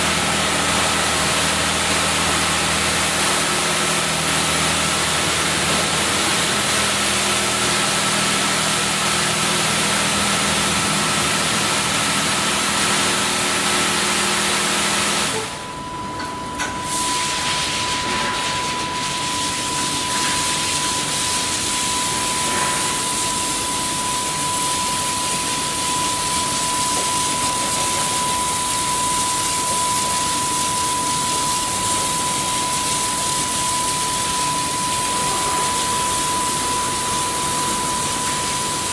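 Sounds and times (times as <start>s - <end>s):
low machine hum: 0.0s - 38.9s
high whine: 15.3s - 38.9s.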